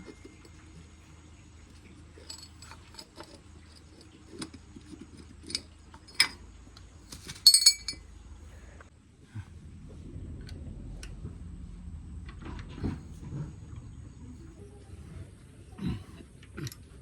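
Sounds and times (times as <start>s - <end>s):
metal parts and tools clinking: 2.0s - 6.4s, 7.1s - 8.1s.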